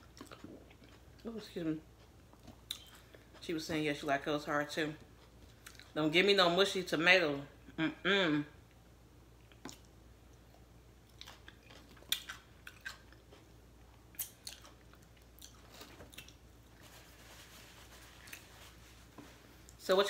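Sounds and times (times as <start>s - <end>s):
person chewing crunchy food: 0.0s - 1.3s, 1.9s - 3.4s, 5.0s - 6.0s, 9.4s - 16.8s.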